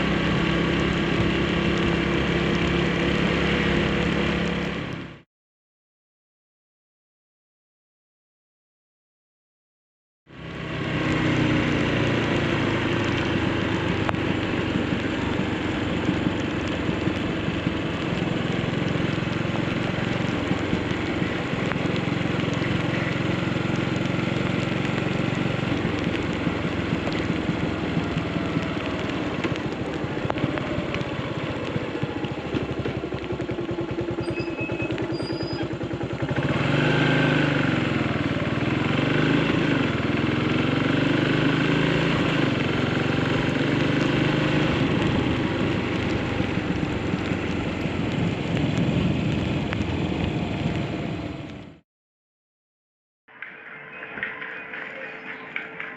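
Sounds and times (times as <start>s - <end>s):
motorcycle engine running: 0.0s - 5.2s, 10.3s - 51.8s
road noise: 0.0s - 5.2s, 10.3s - 51.8s, 53.3s - 55.9s
wind noise: 44.1s - 51.7s.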